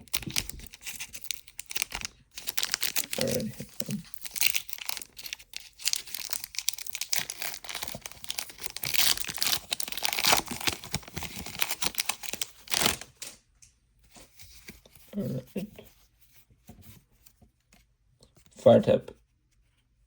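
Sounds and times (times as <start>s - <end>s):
foil wrapper tearing and crinkling: 0.0s - 13.4s.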